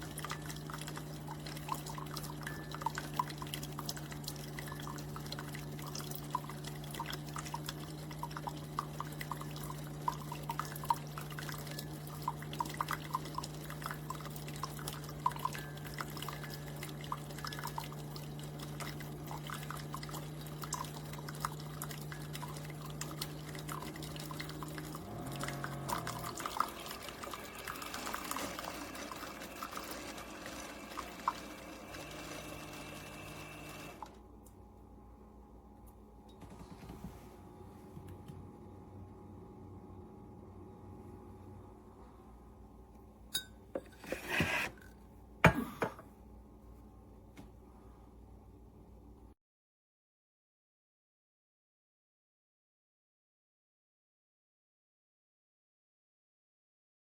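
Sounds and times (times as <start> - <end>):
coffee dripping into cup: 0.0 - 32.4
coffee maker pump hum: 0.0 - 49.3.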